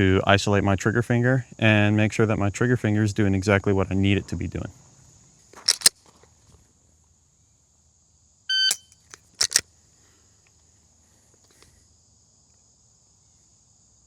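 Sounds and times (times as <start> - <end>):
pistol trigger clicks: 5.6 - 5.9, 8.6 - 9.6
shot timer beep: 8.5 - 9.0.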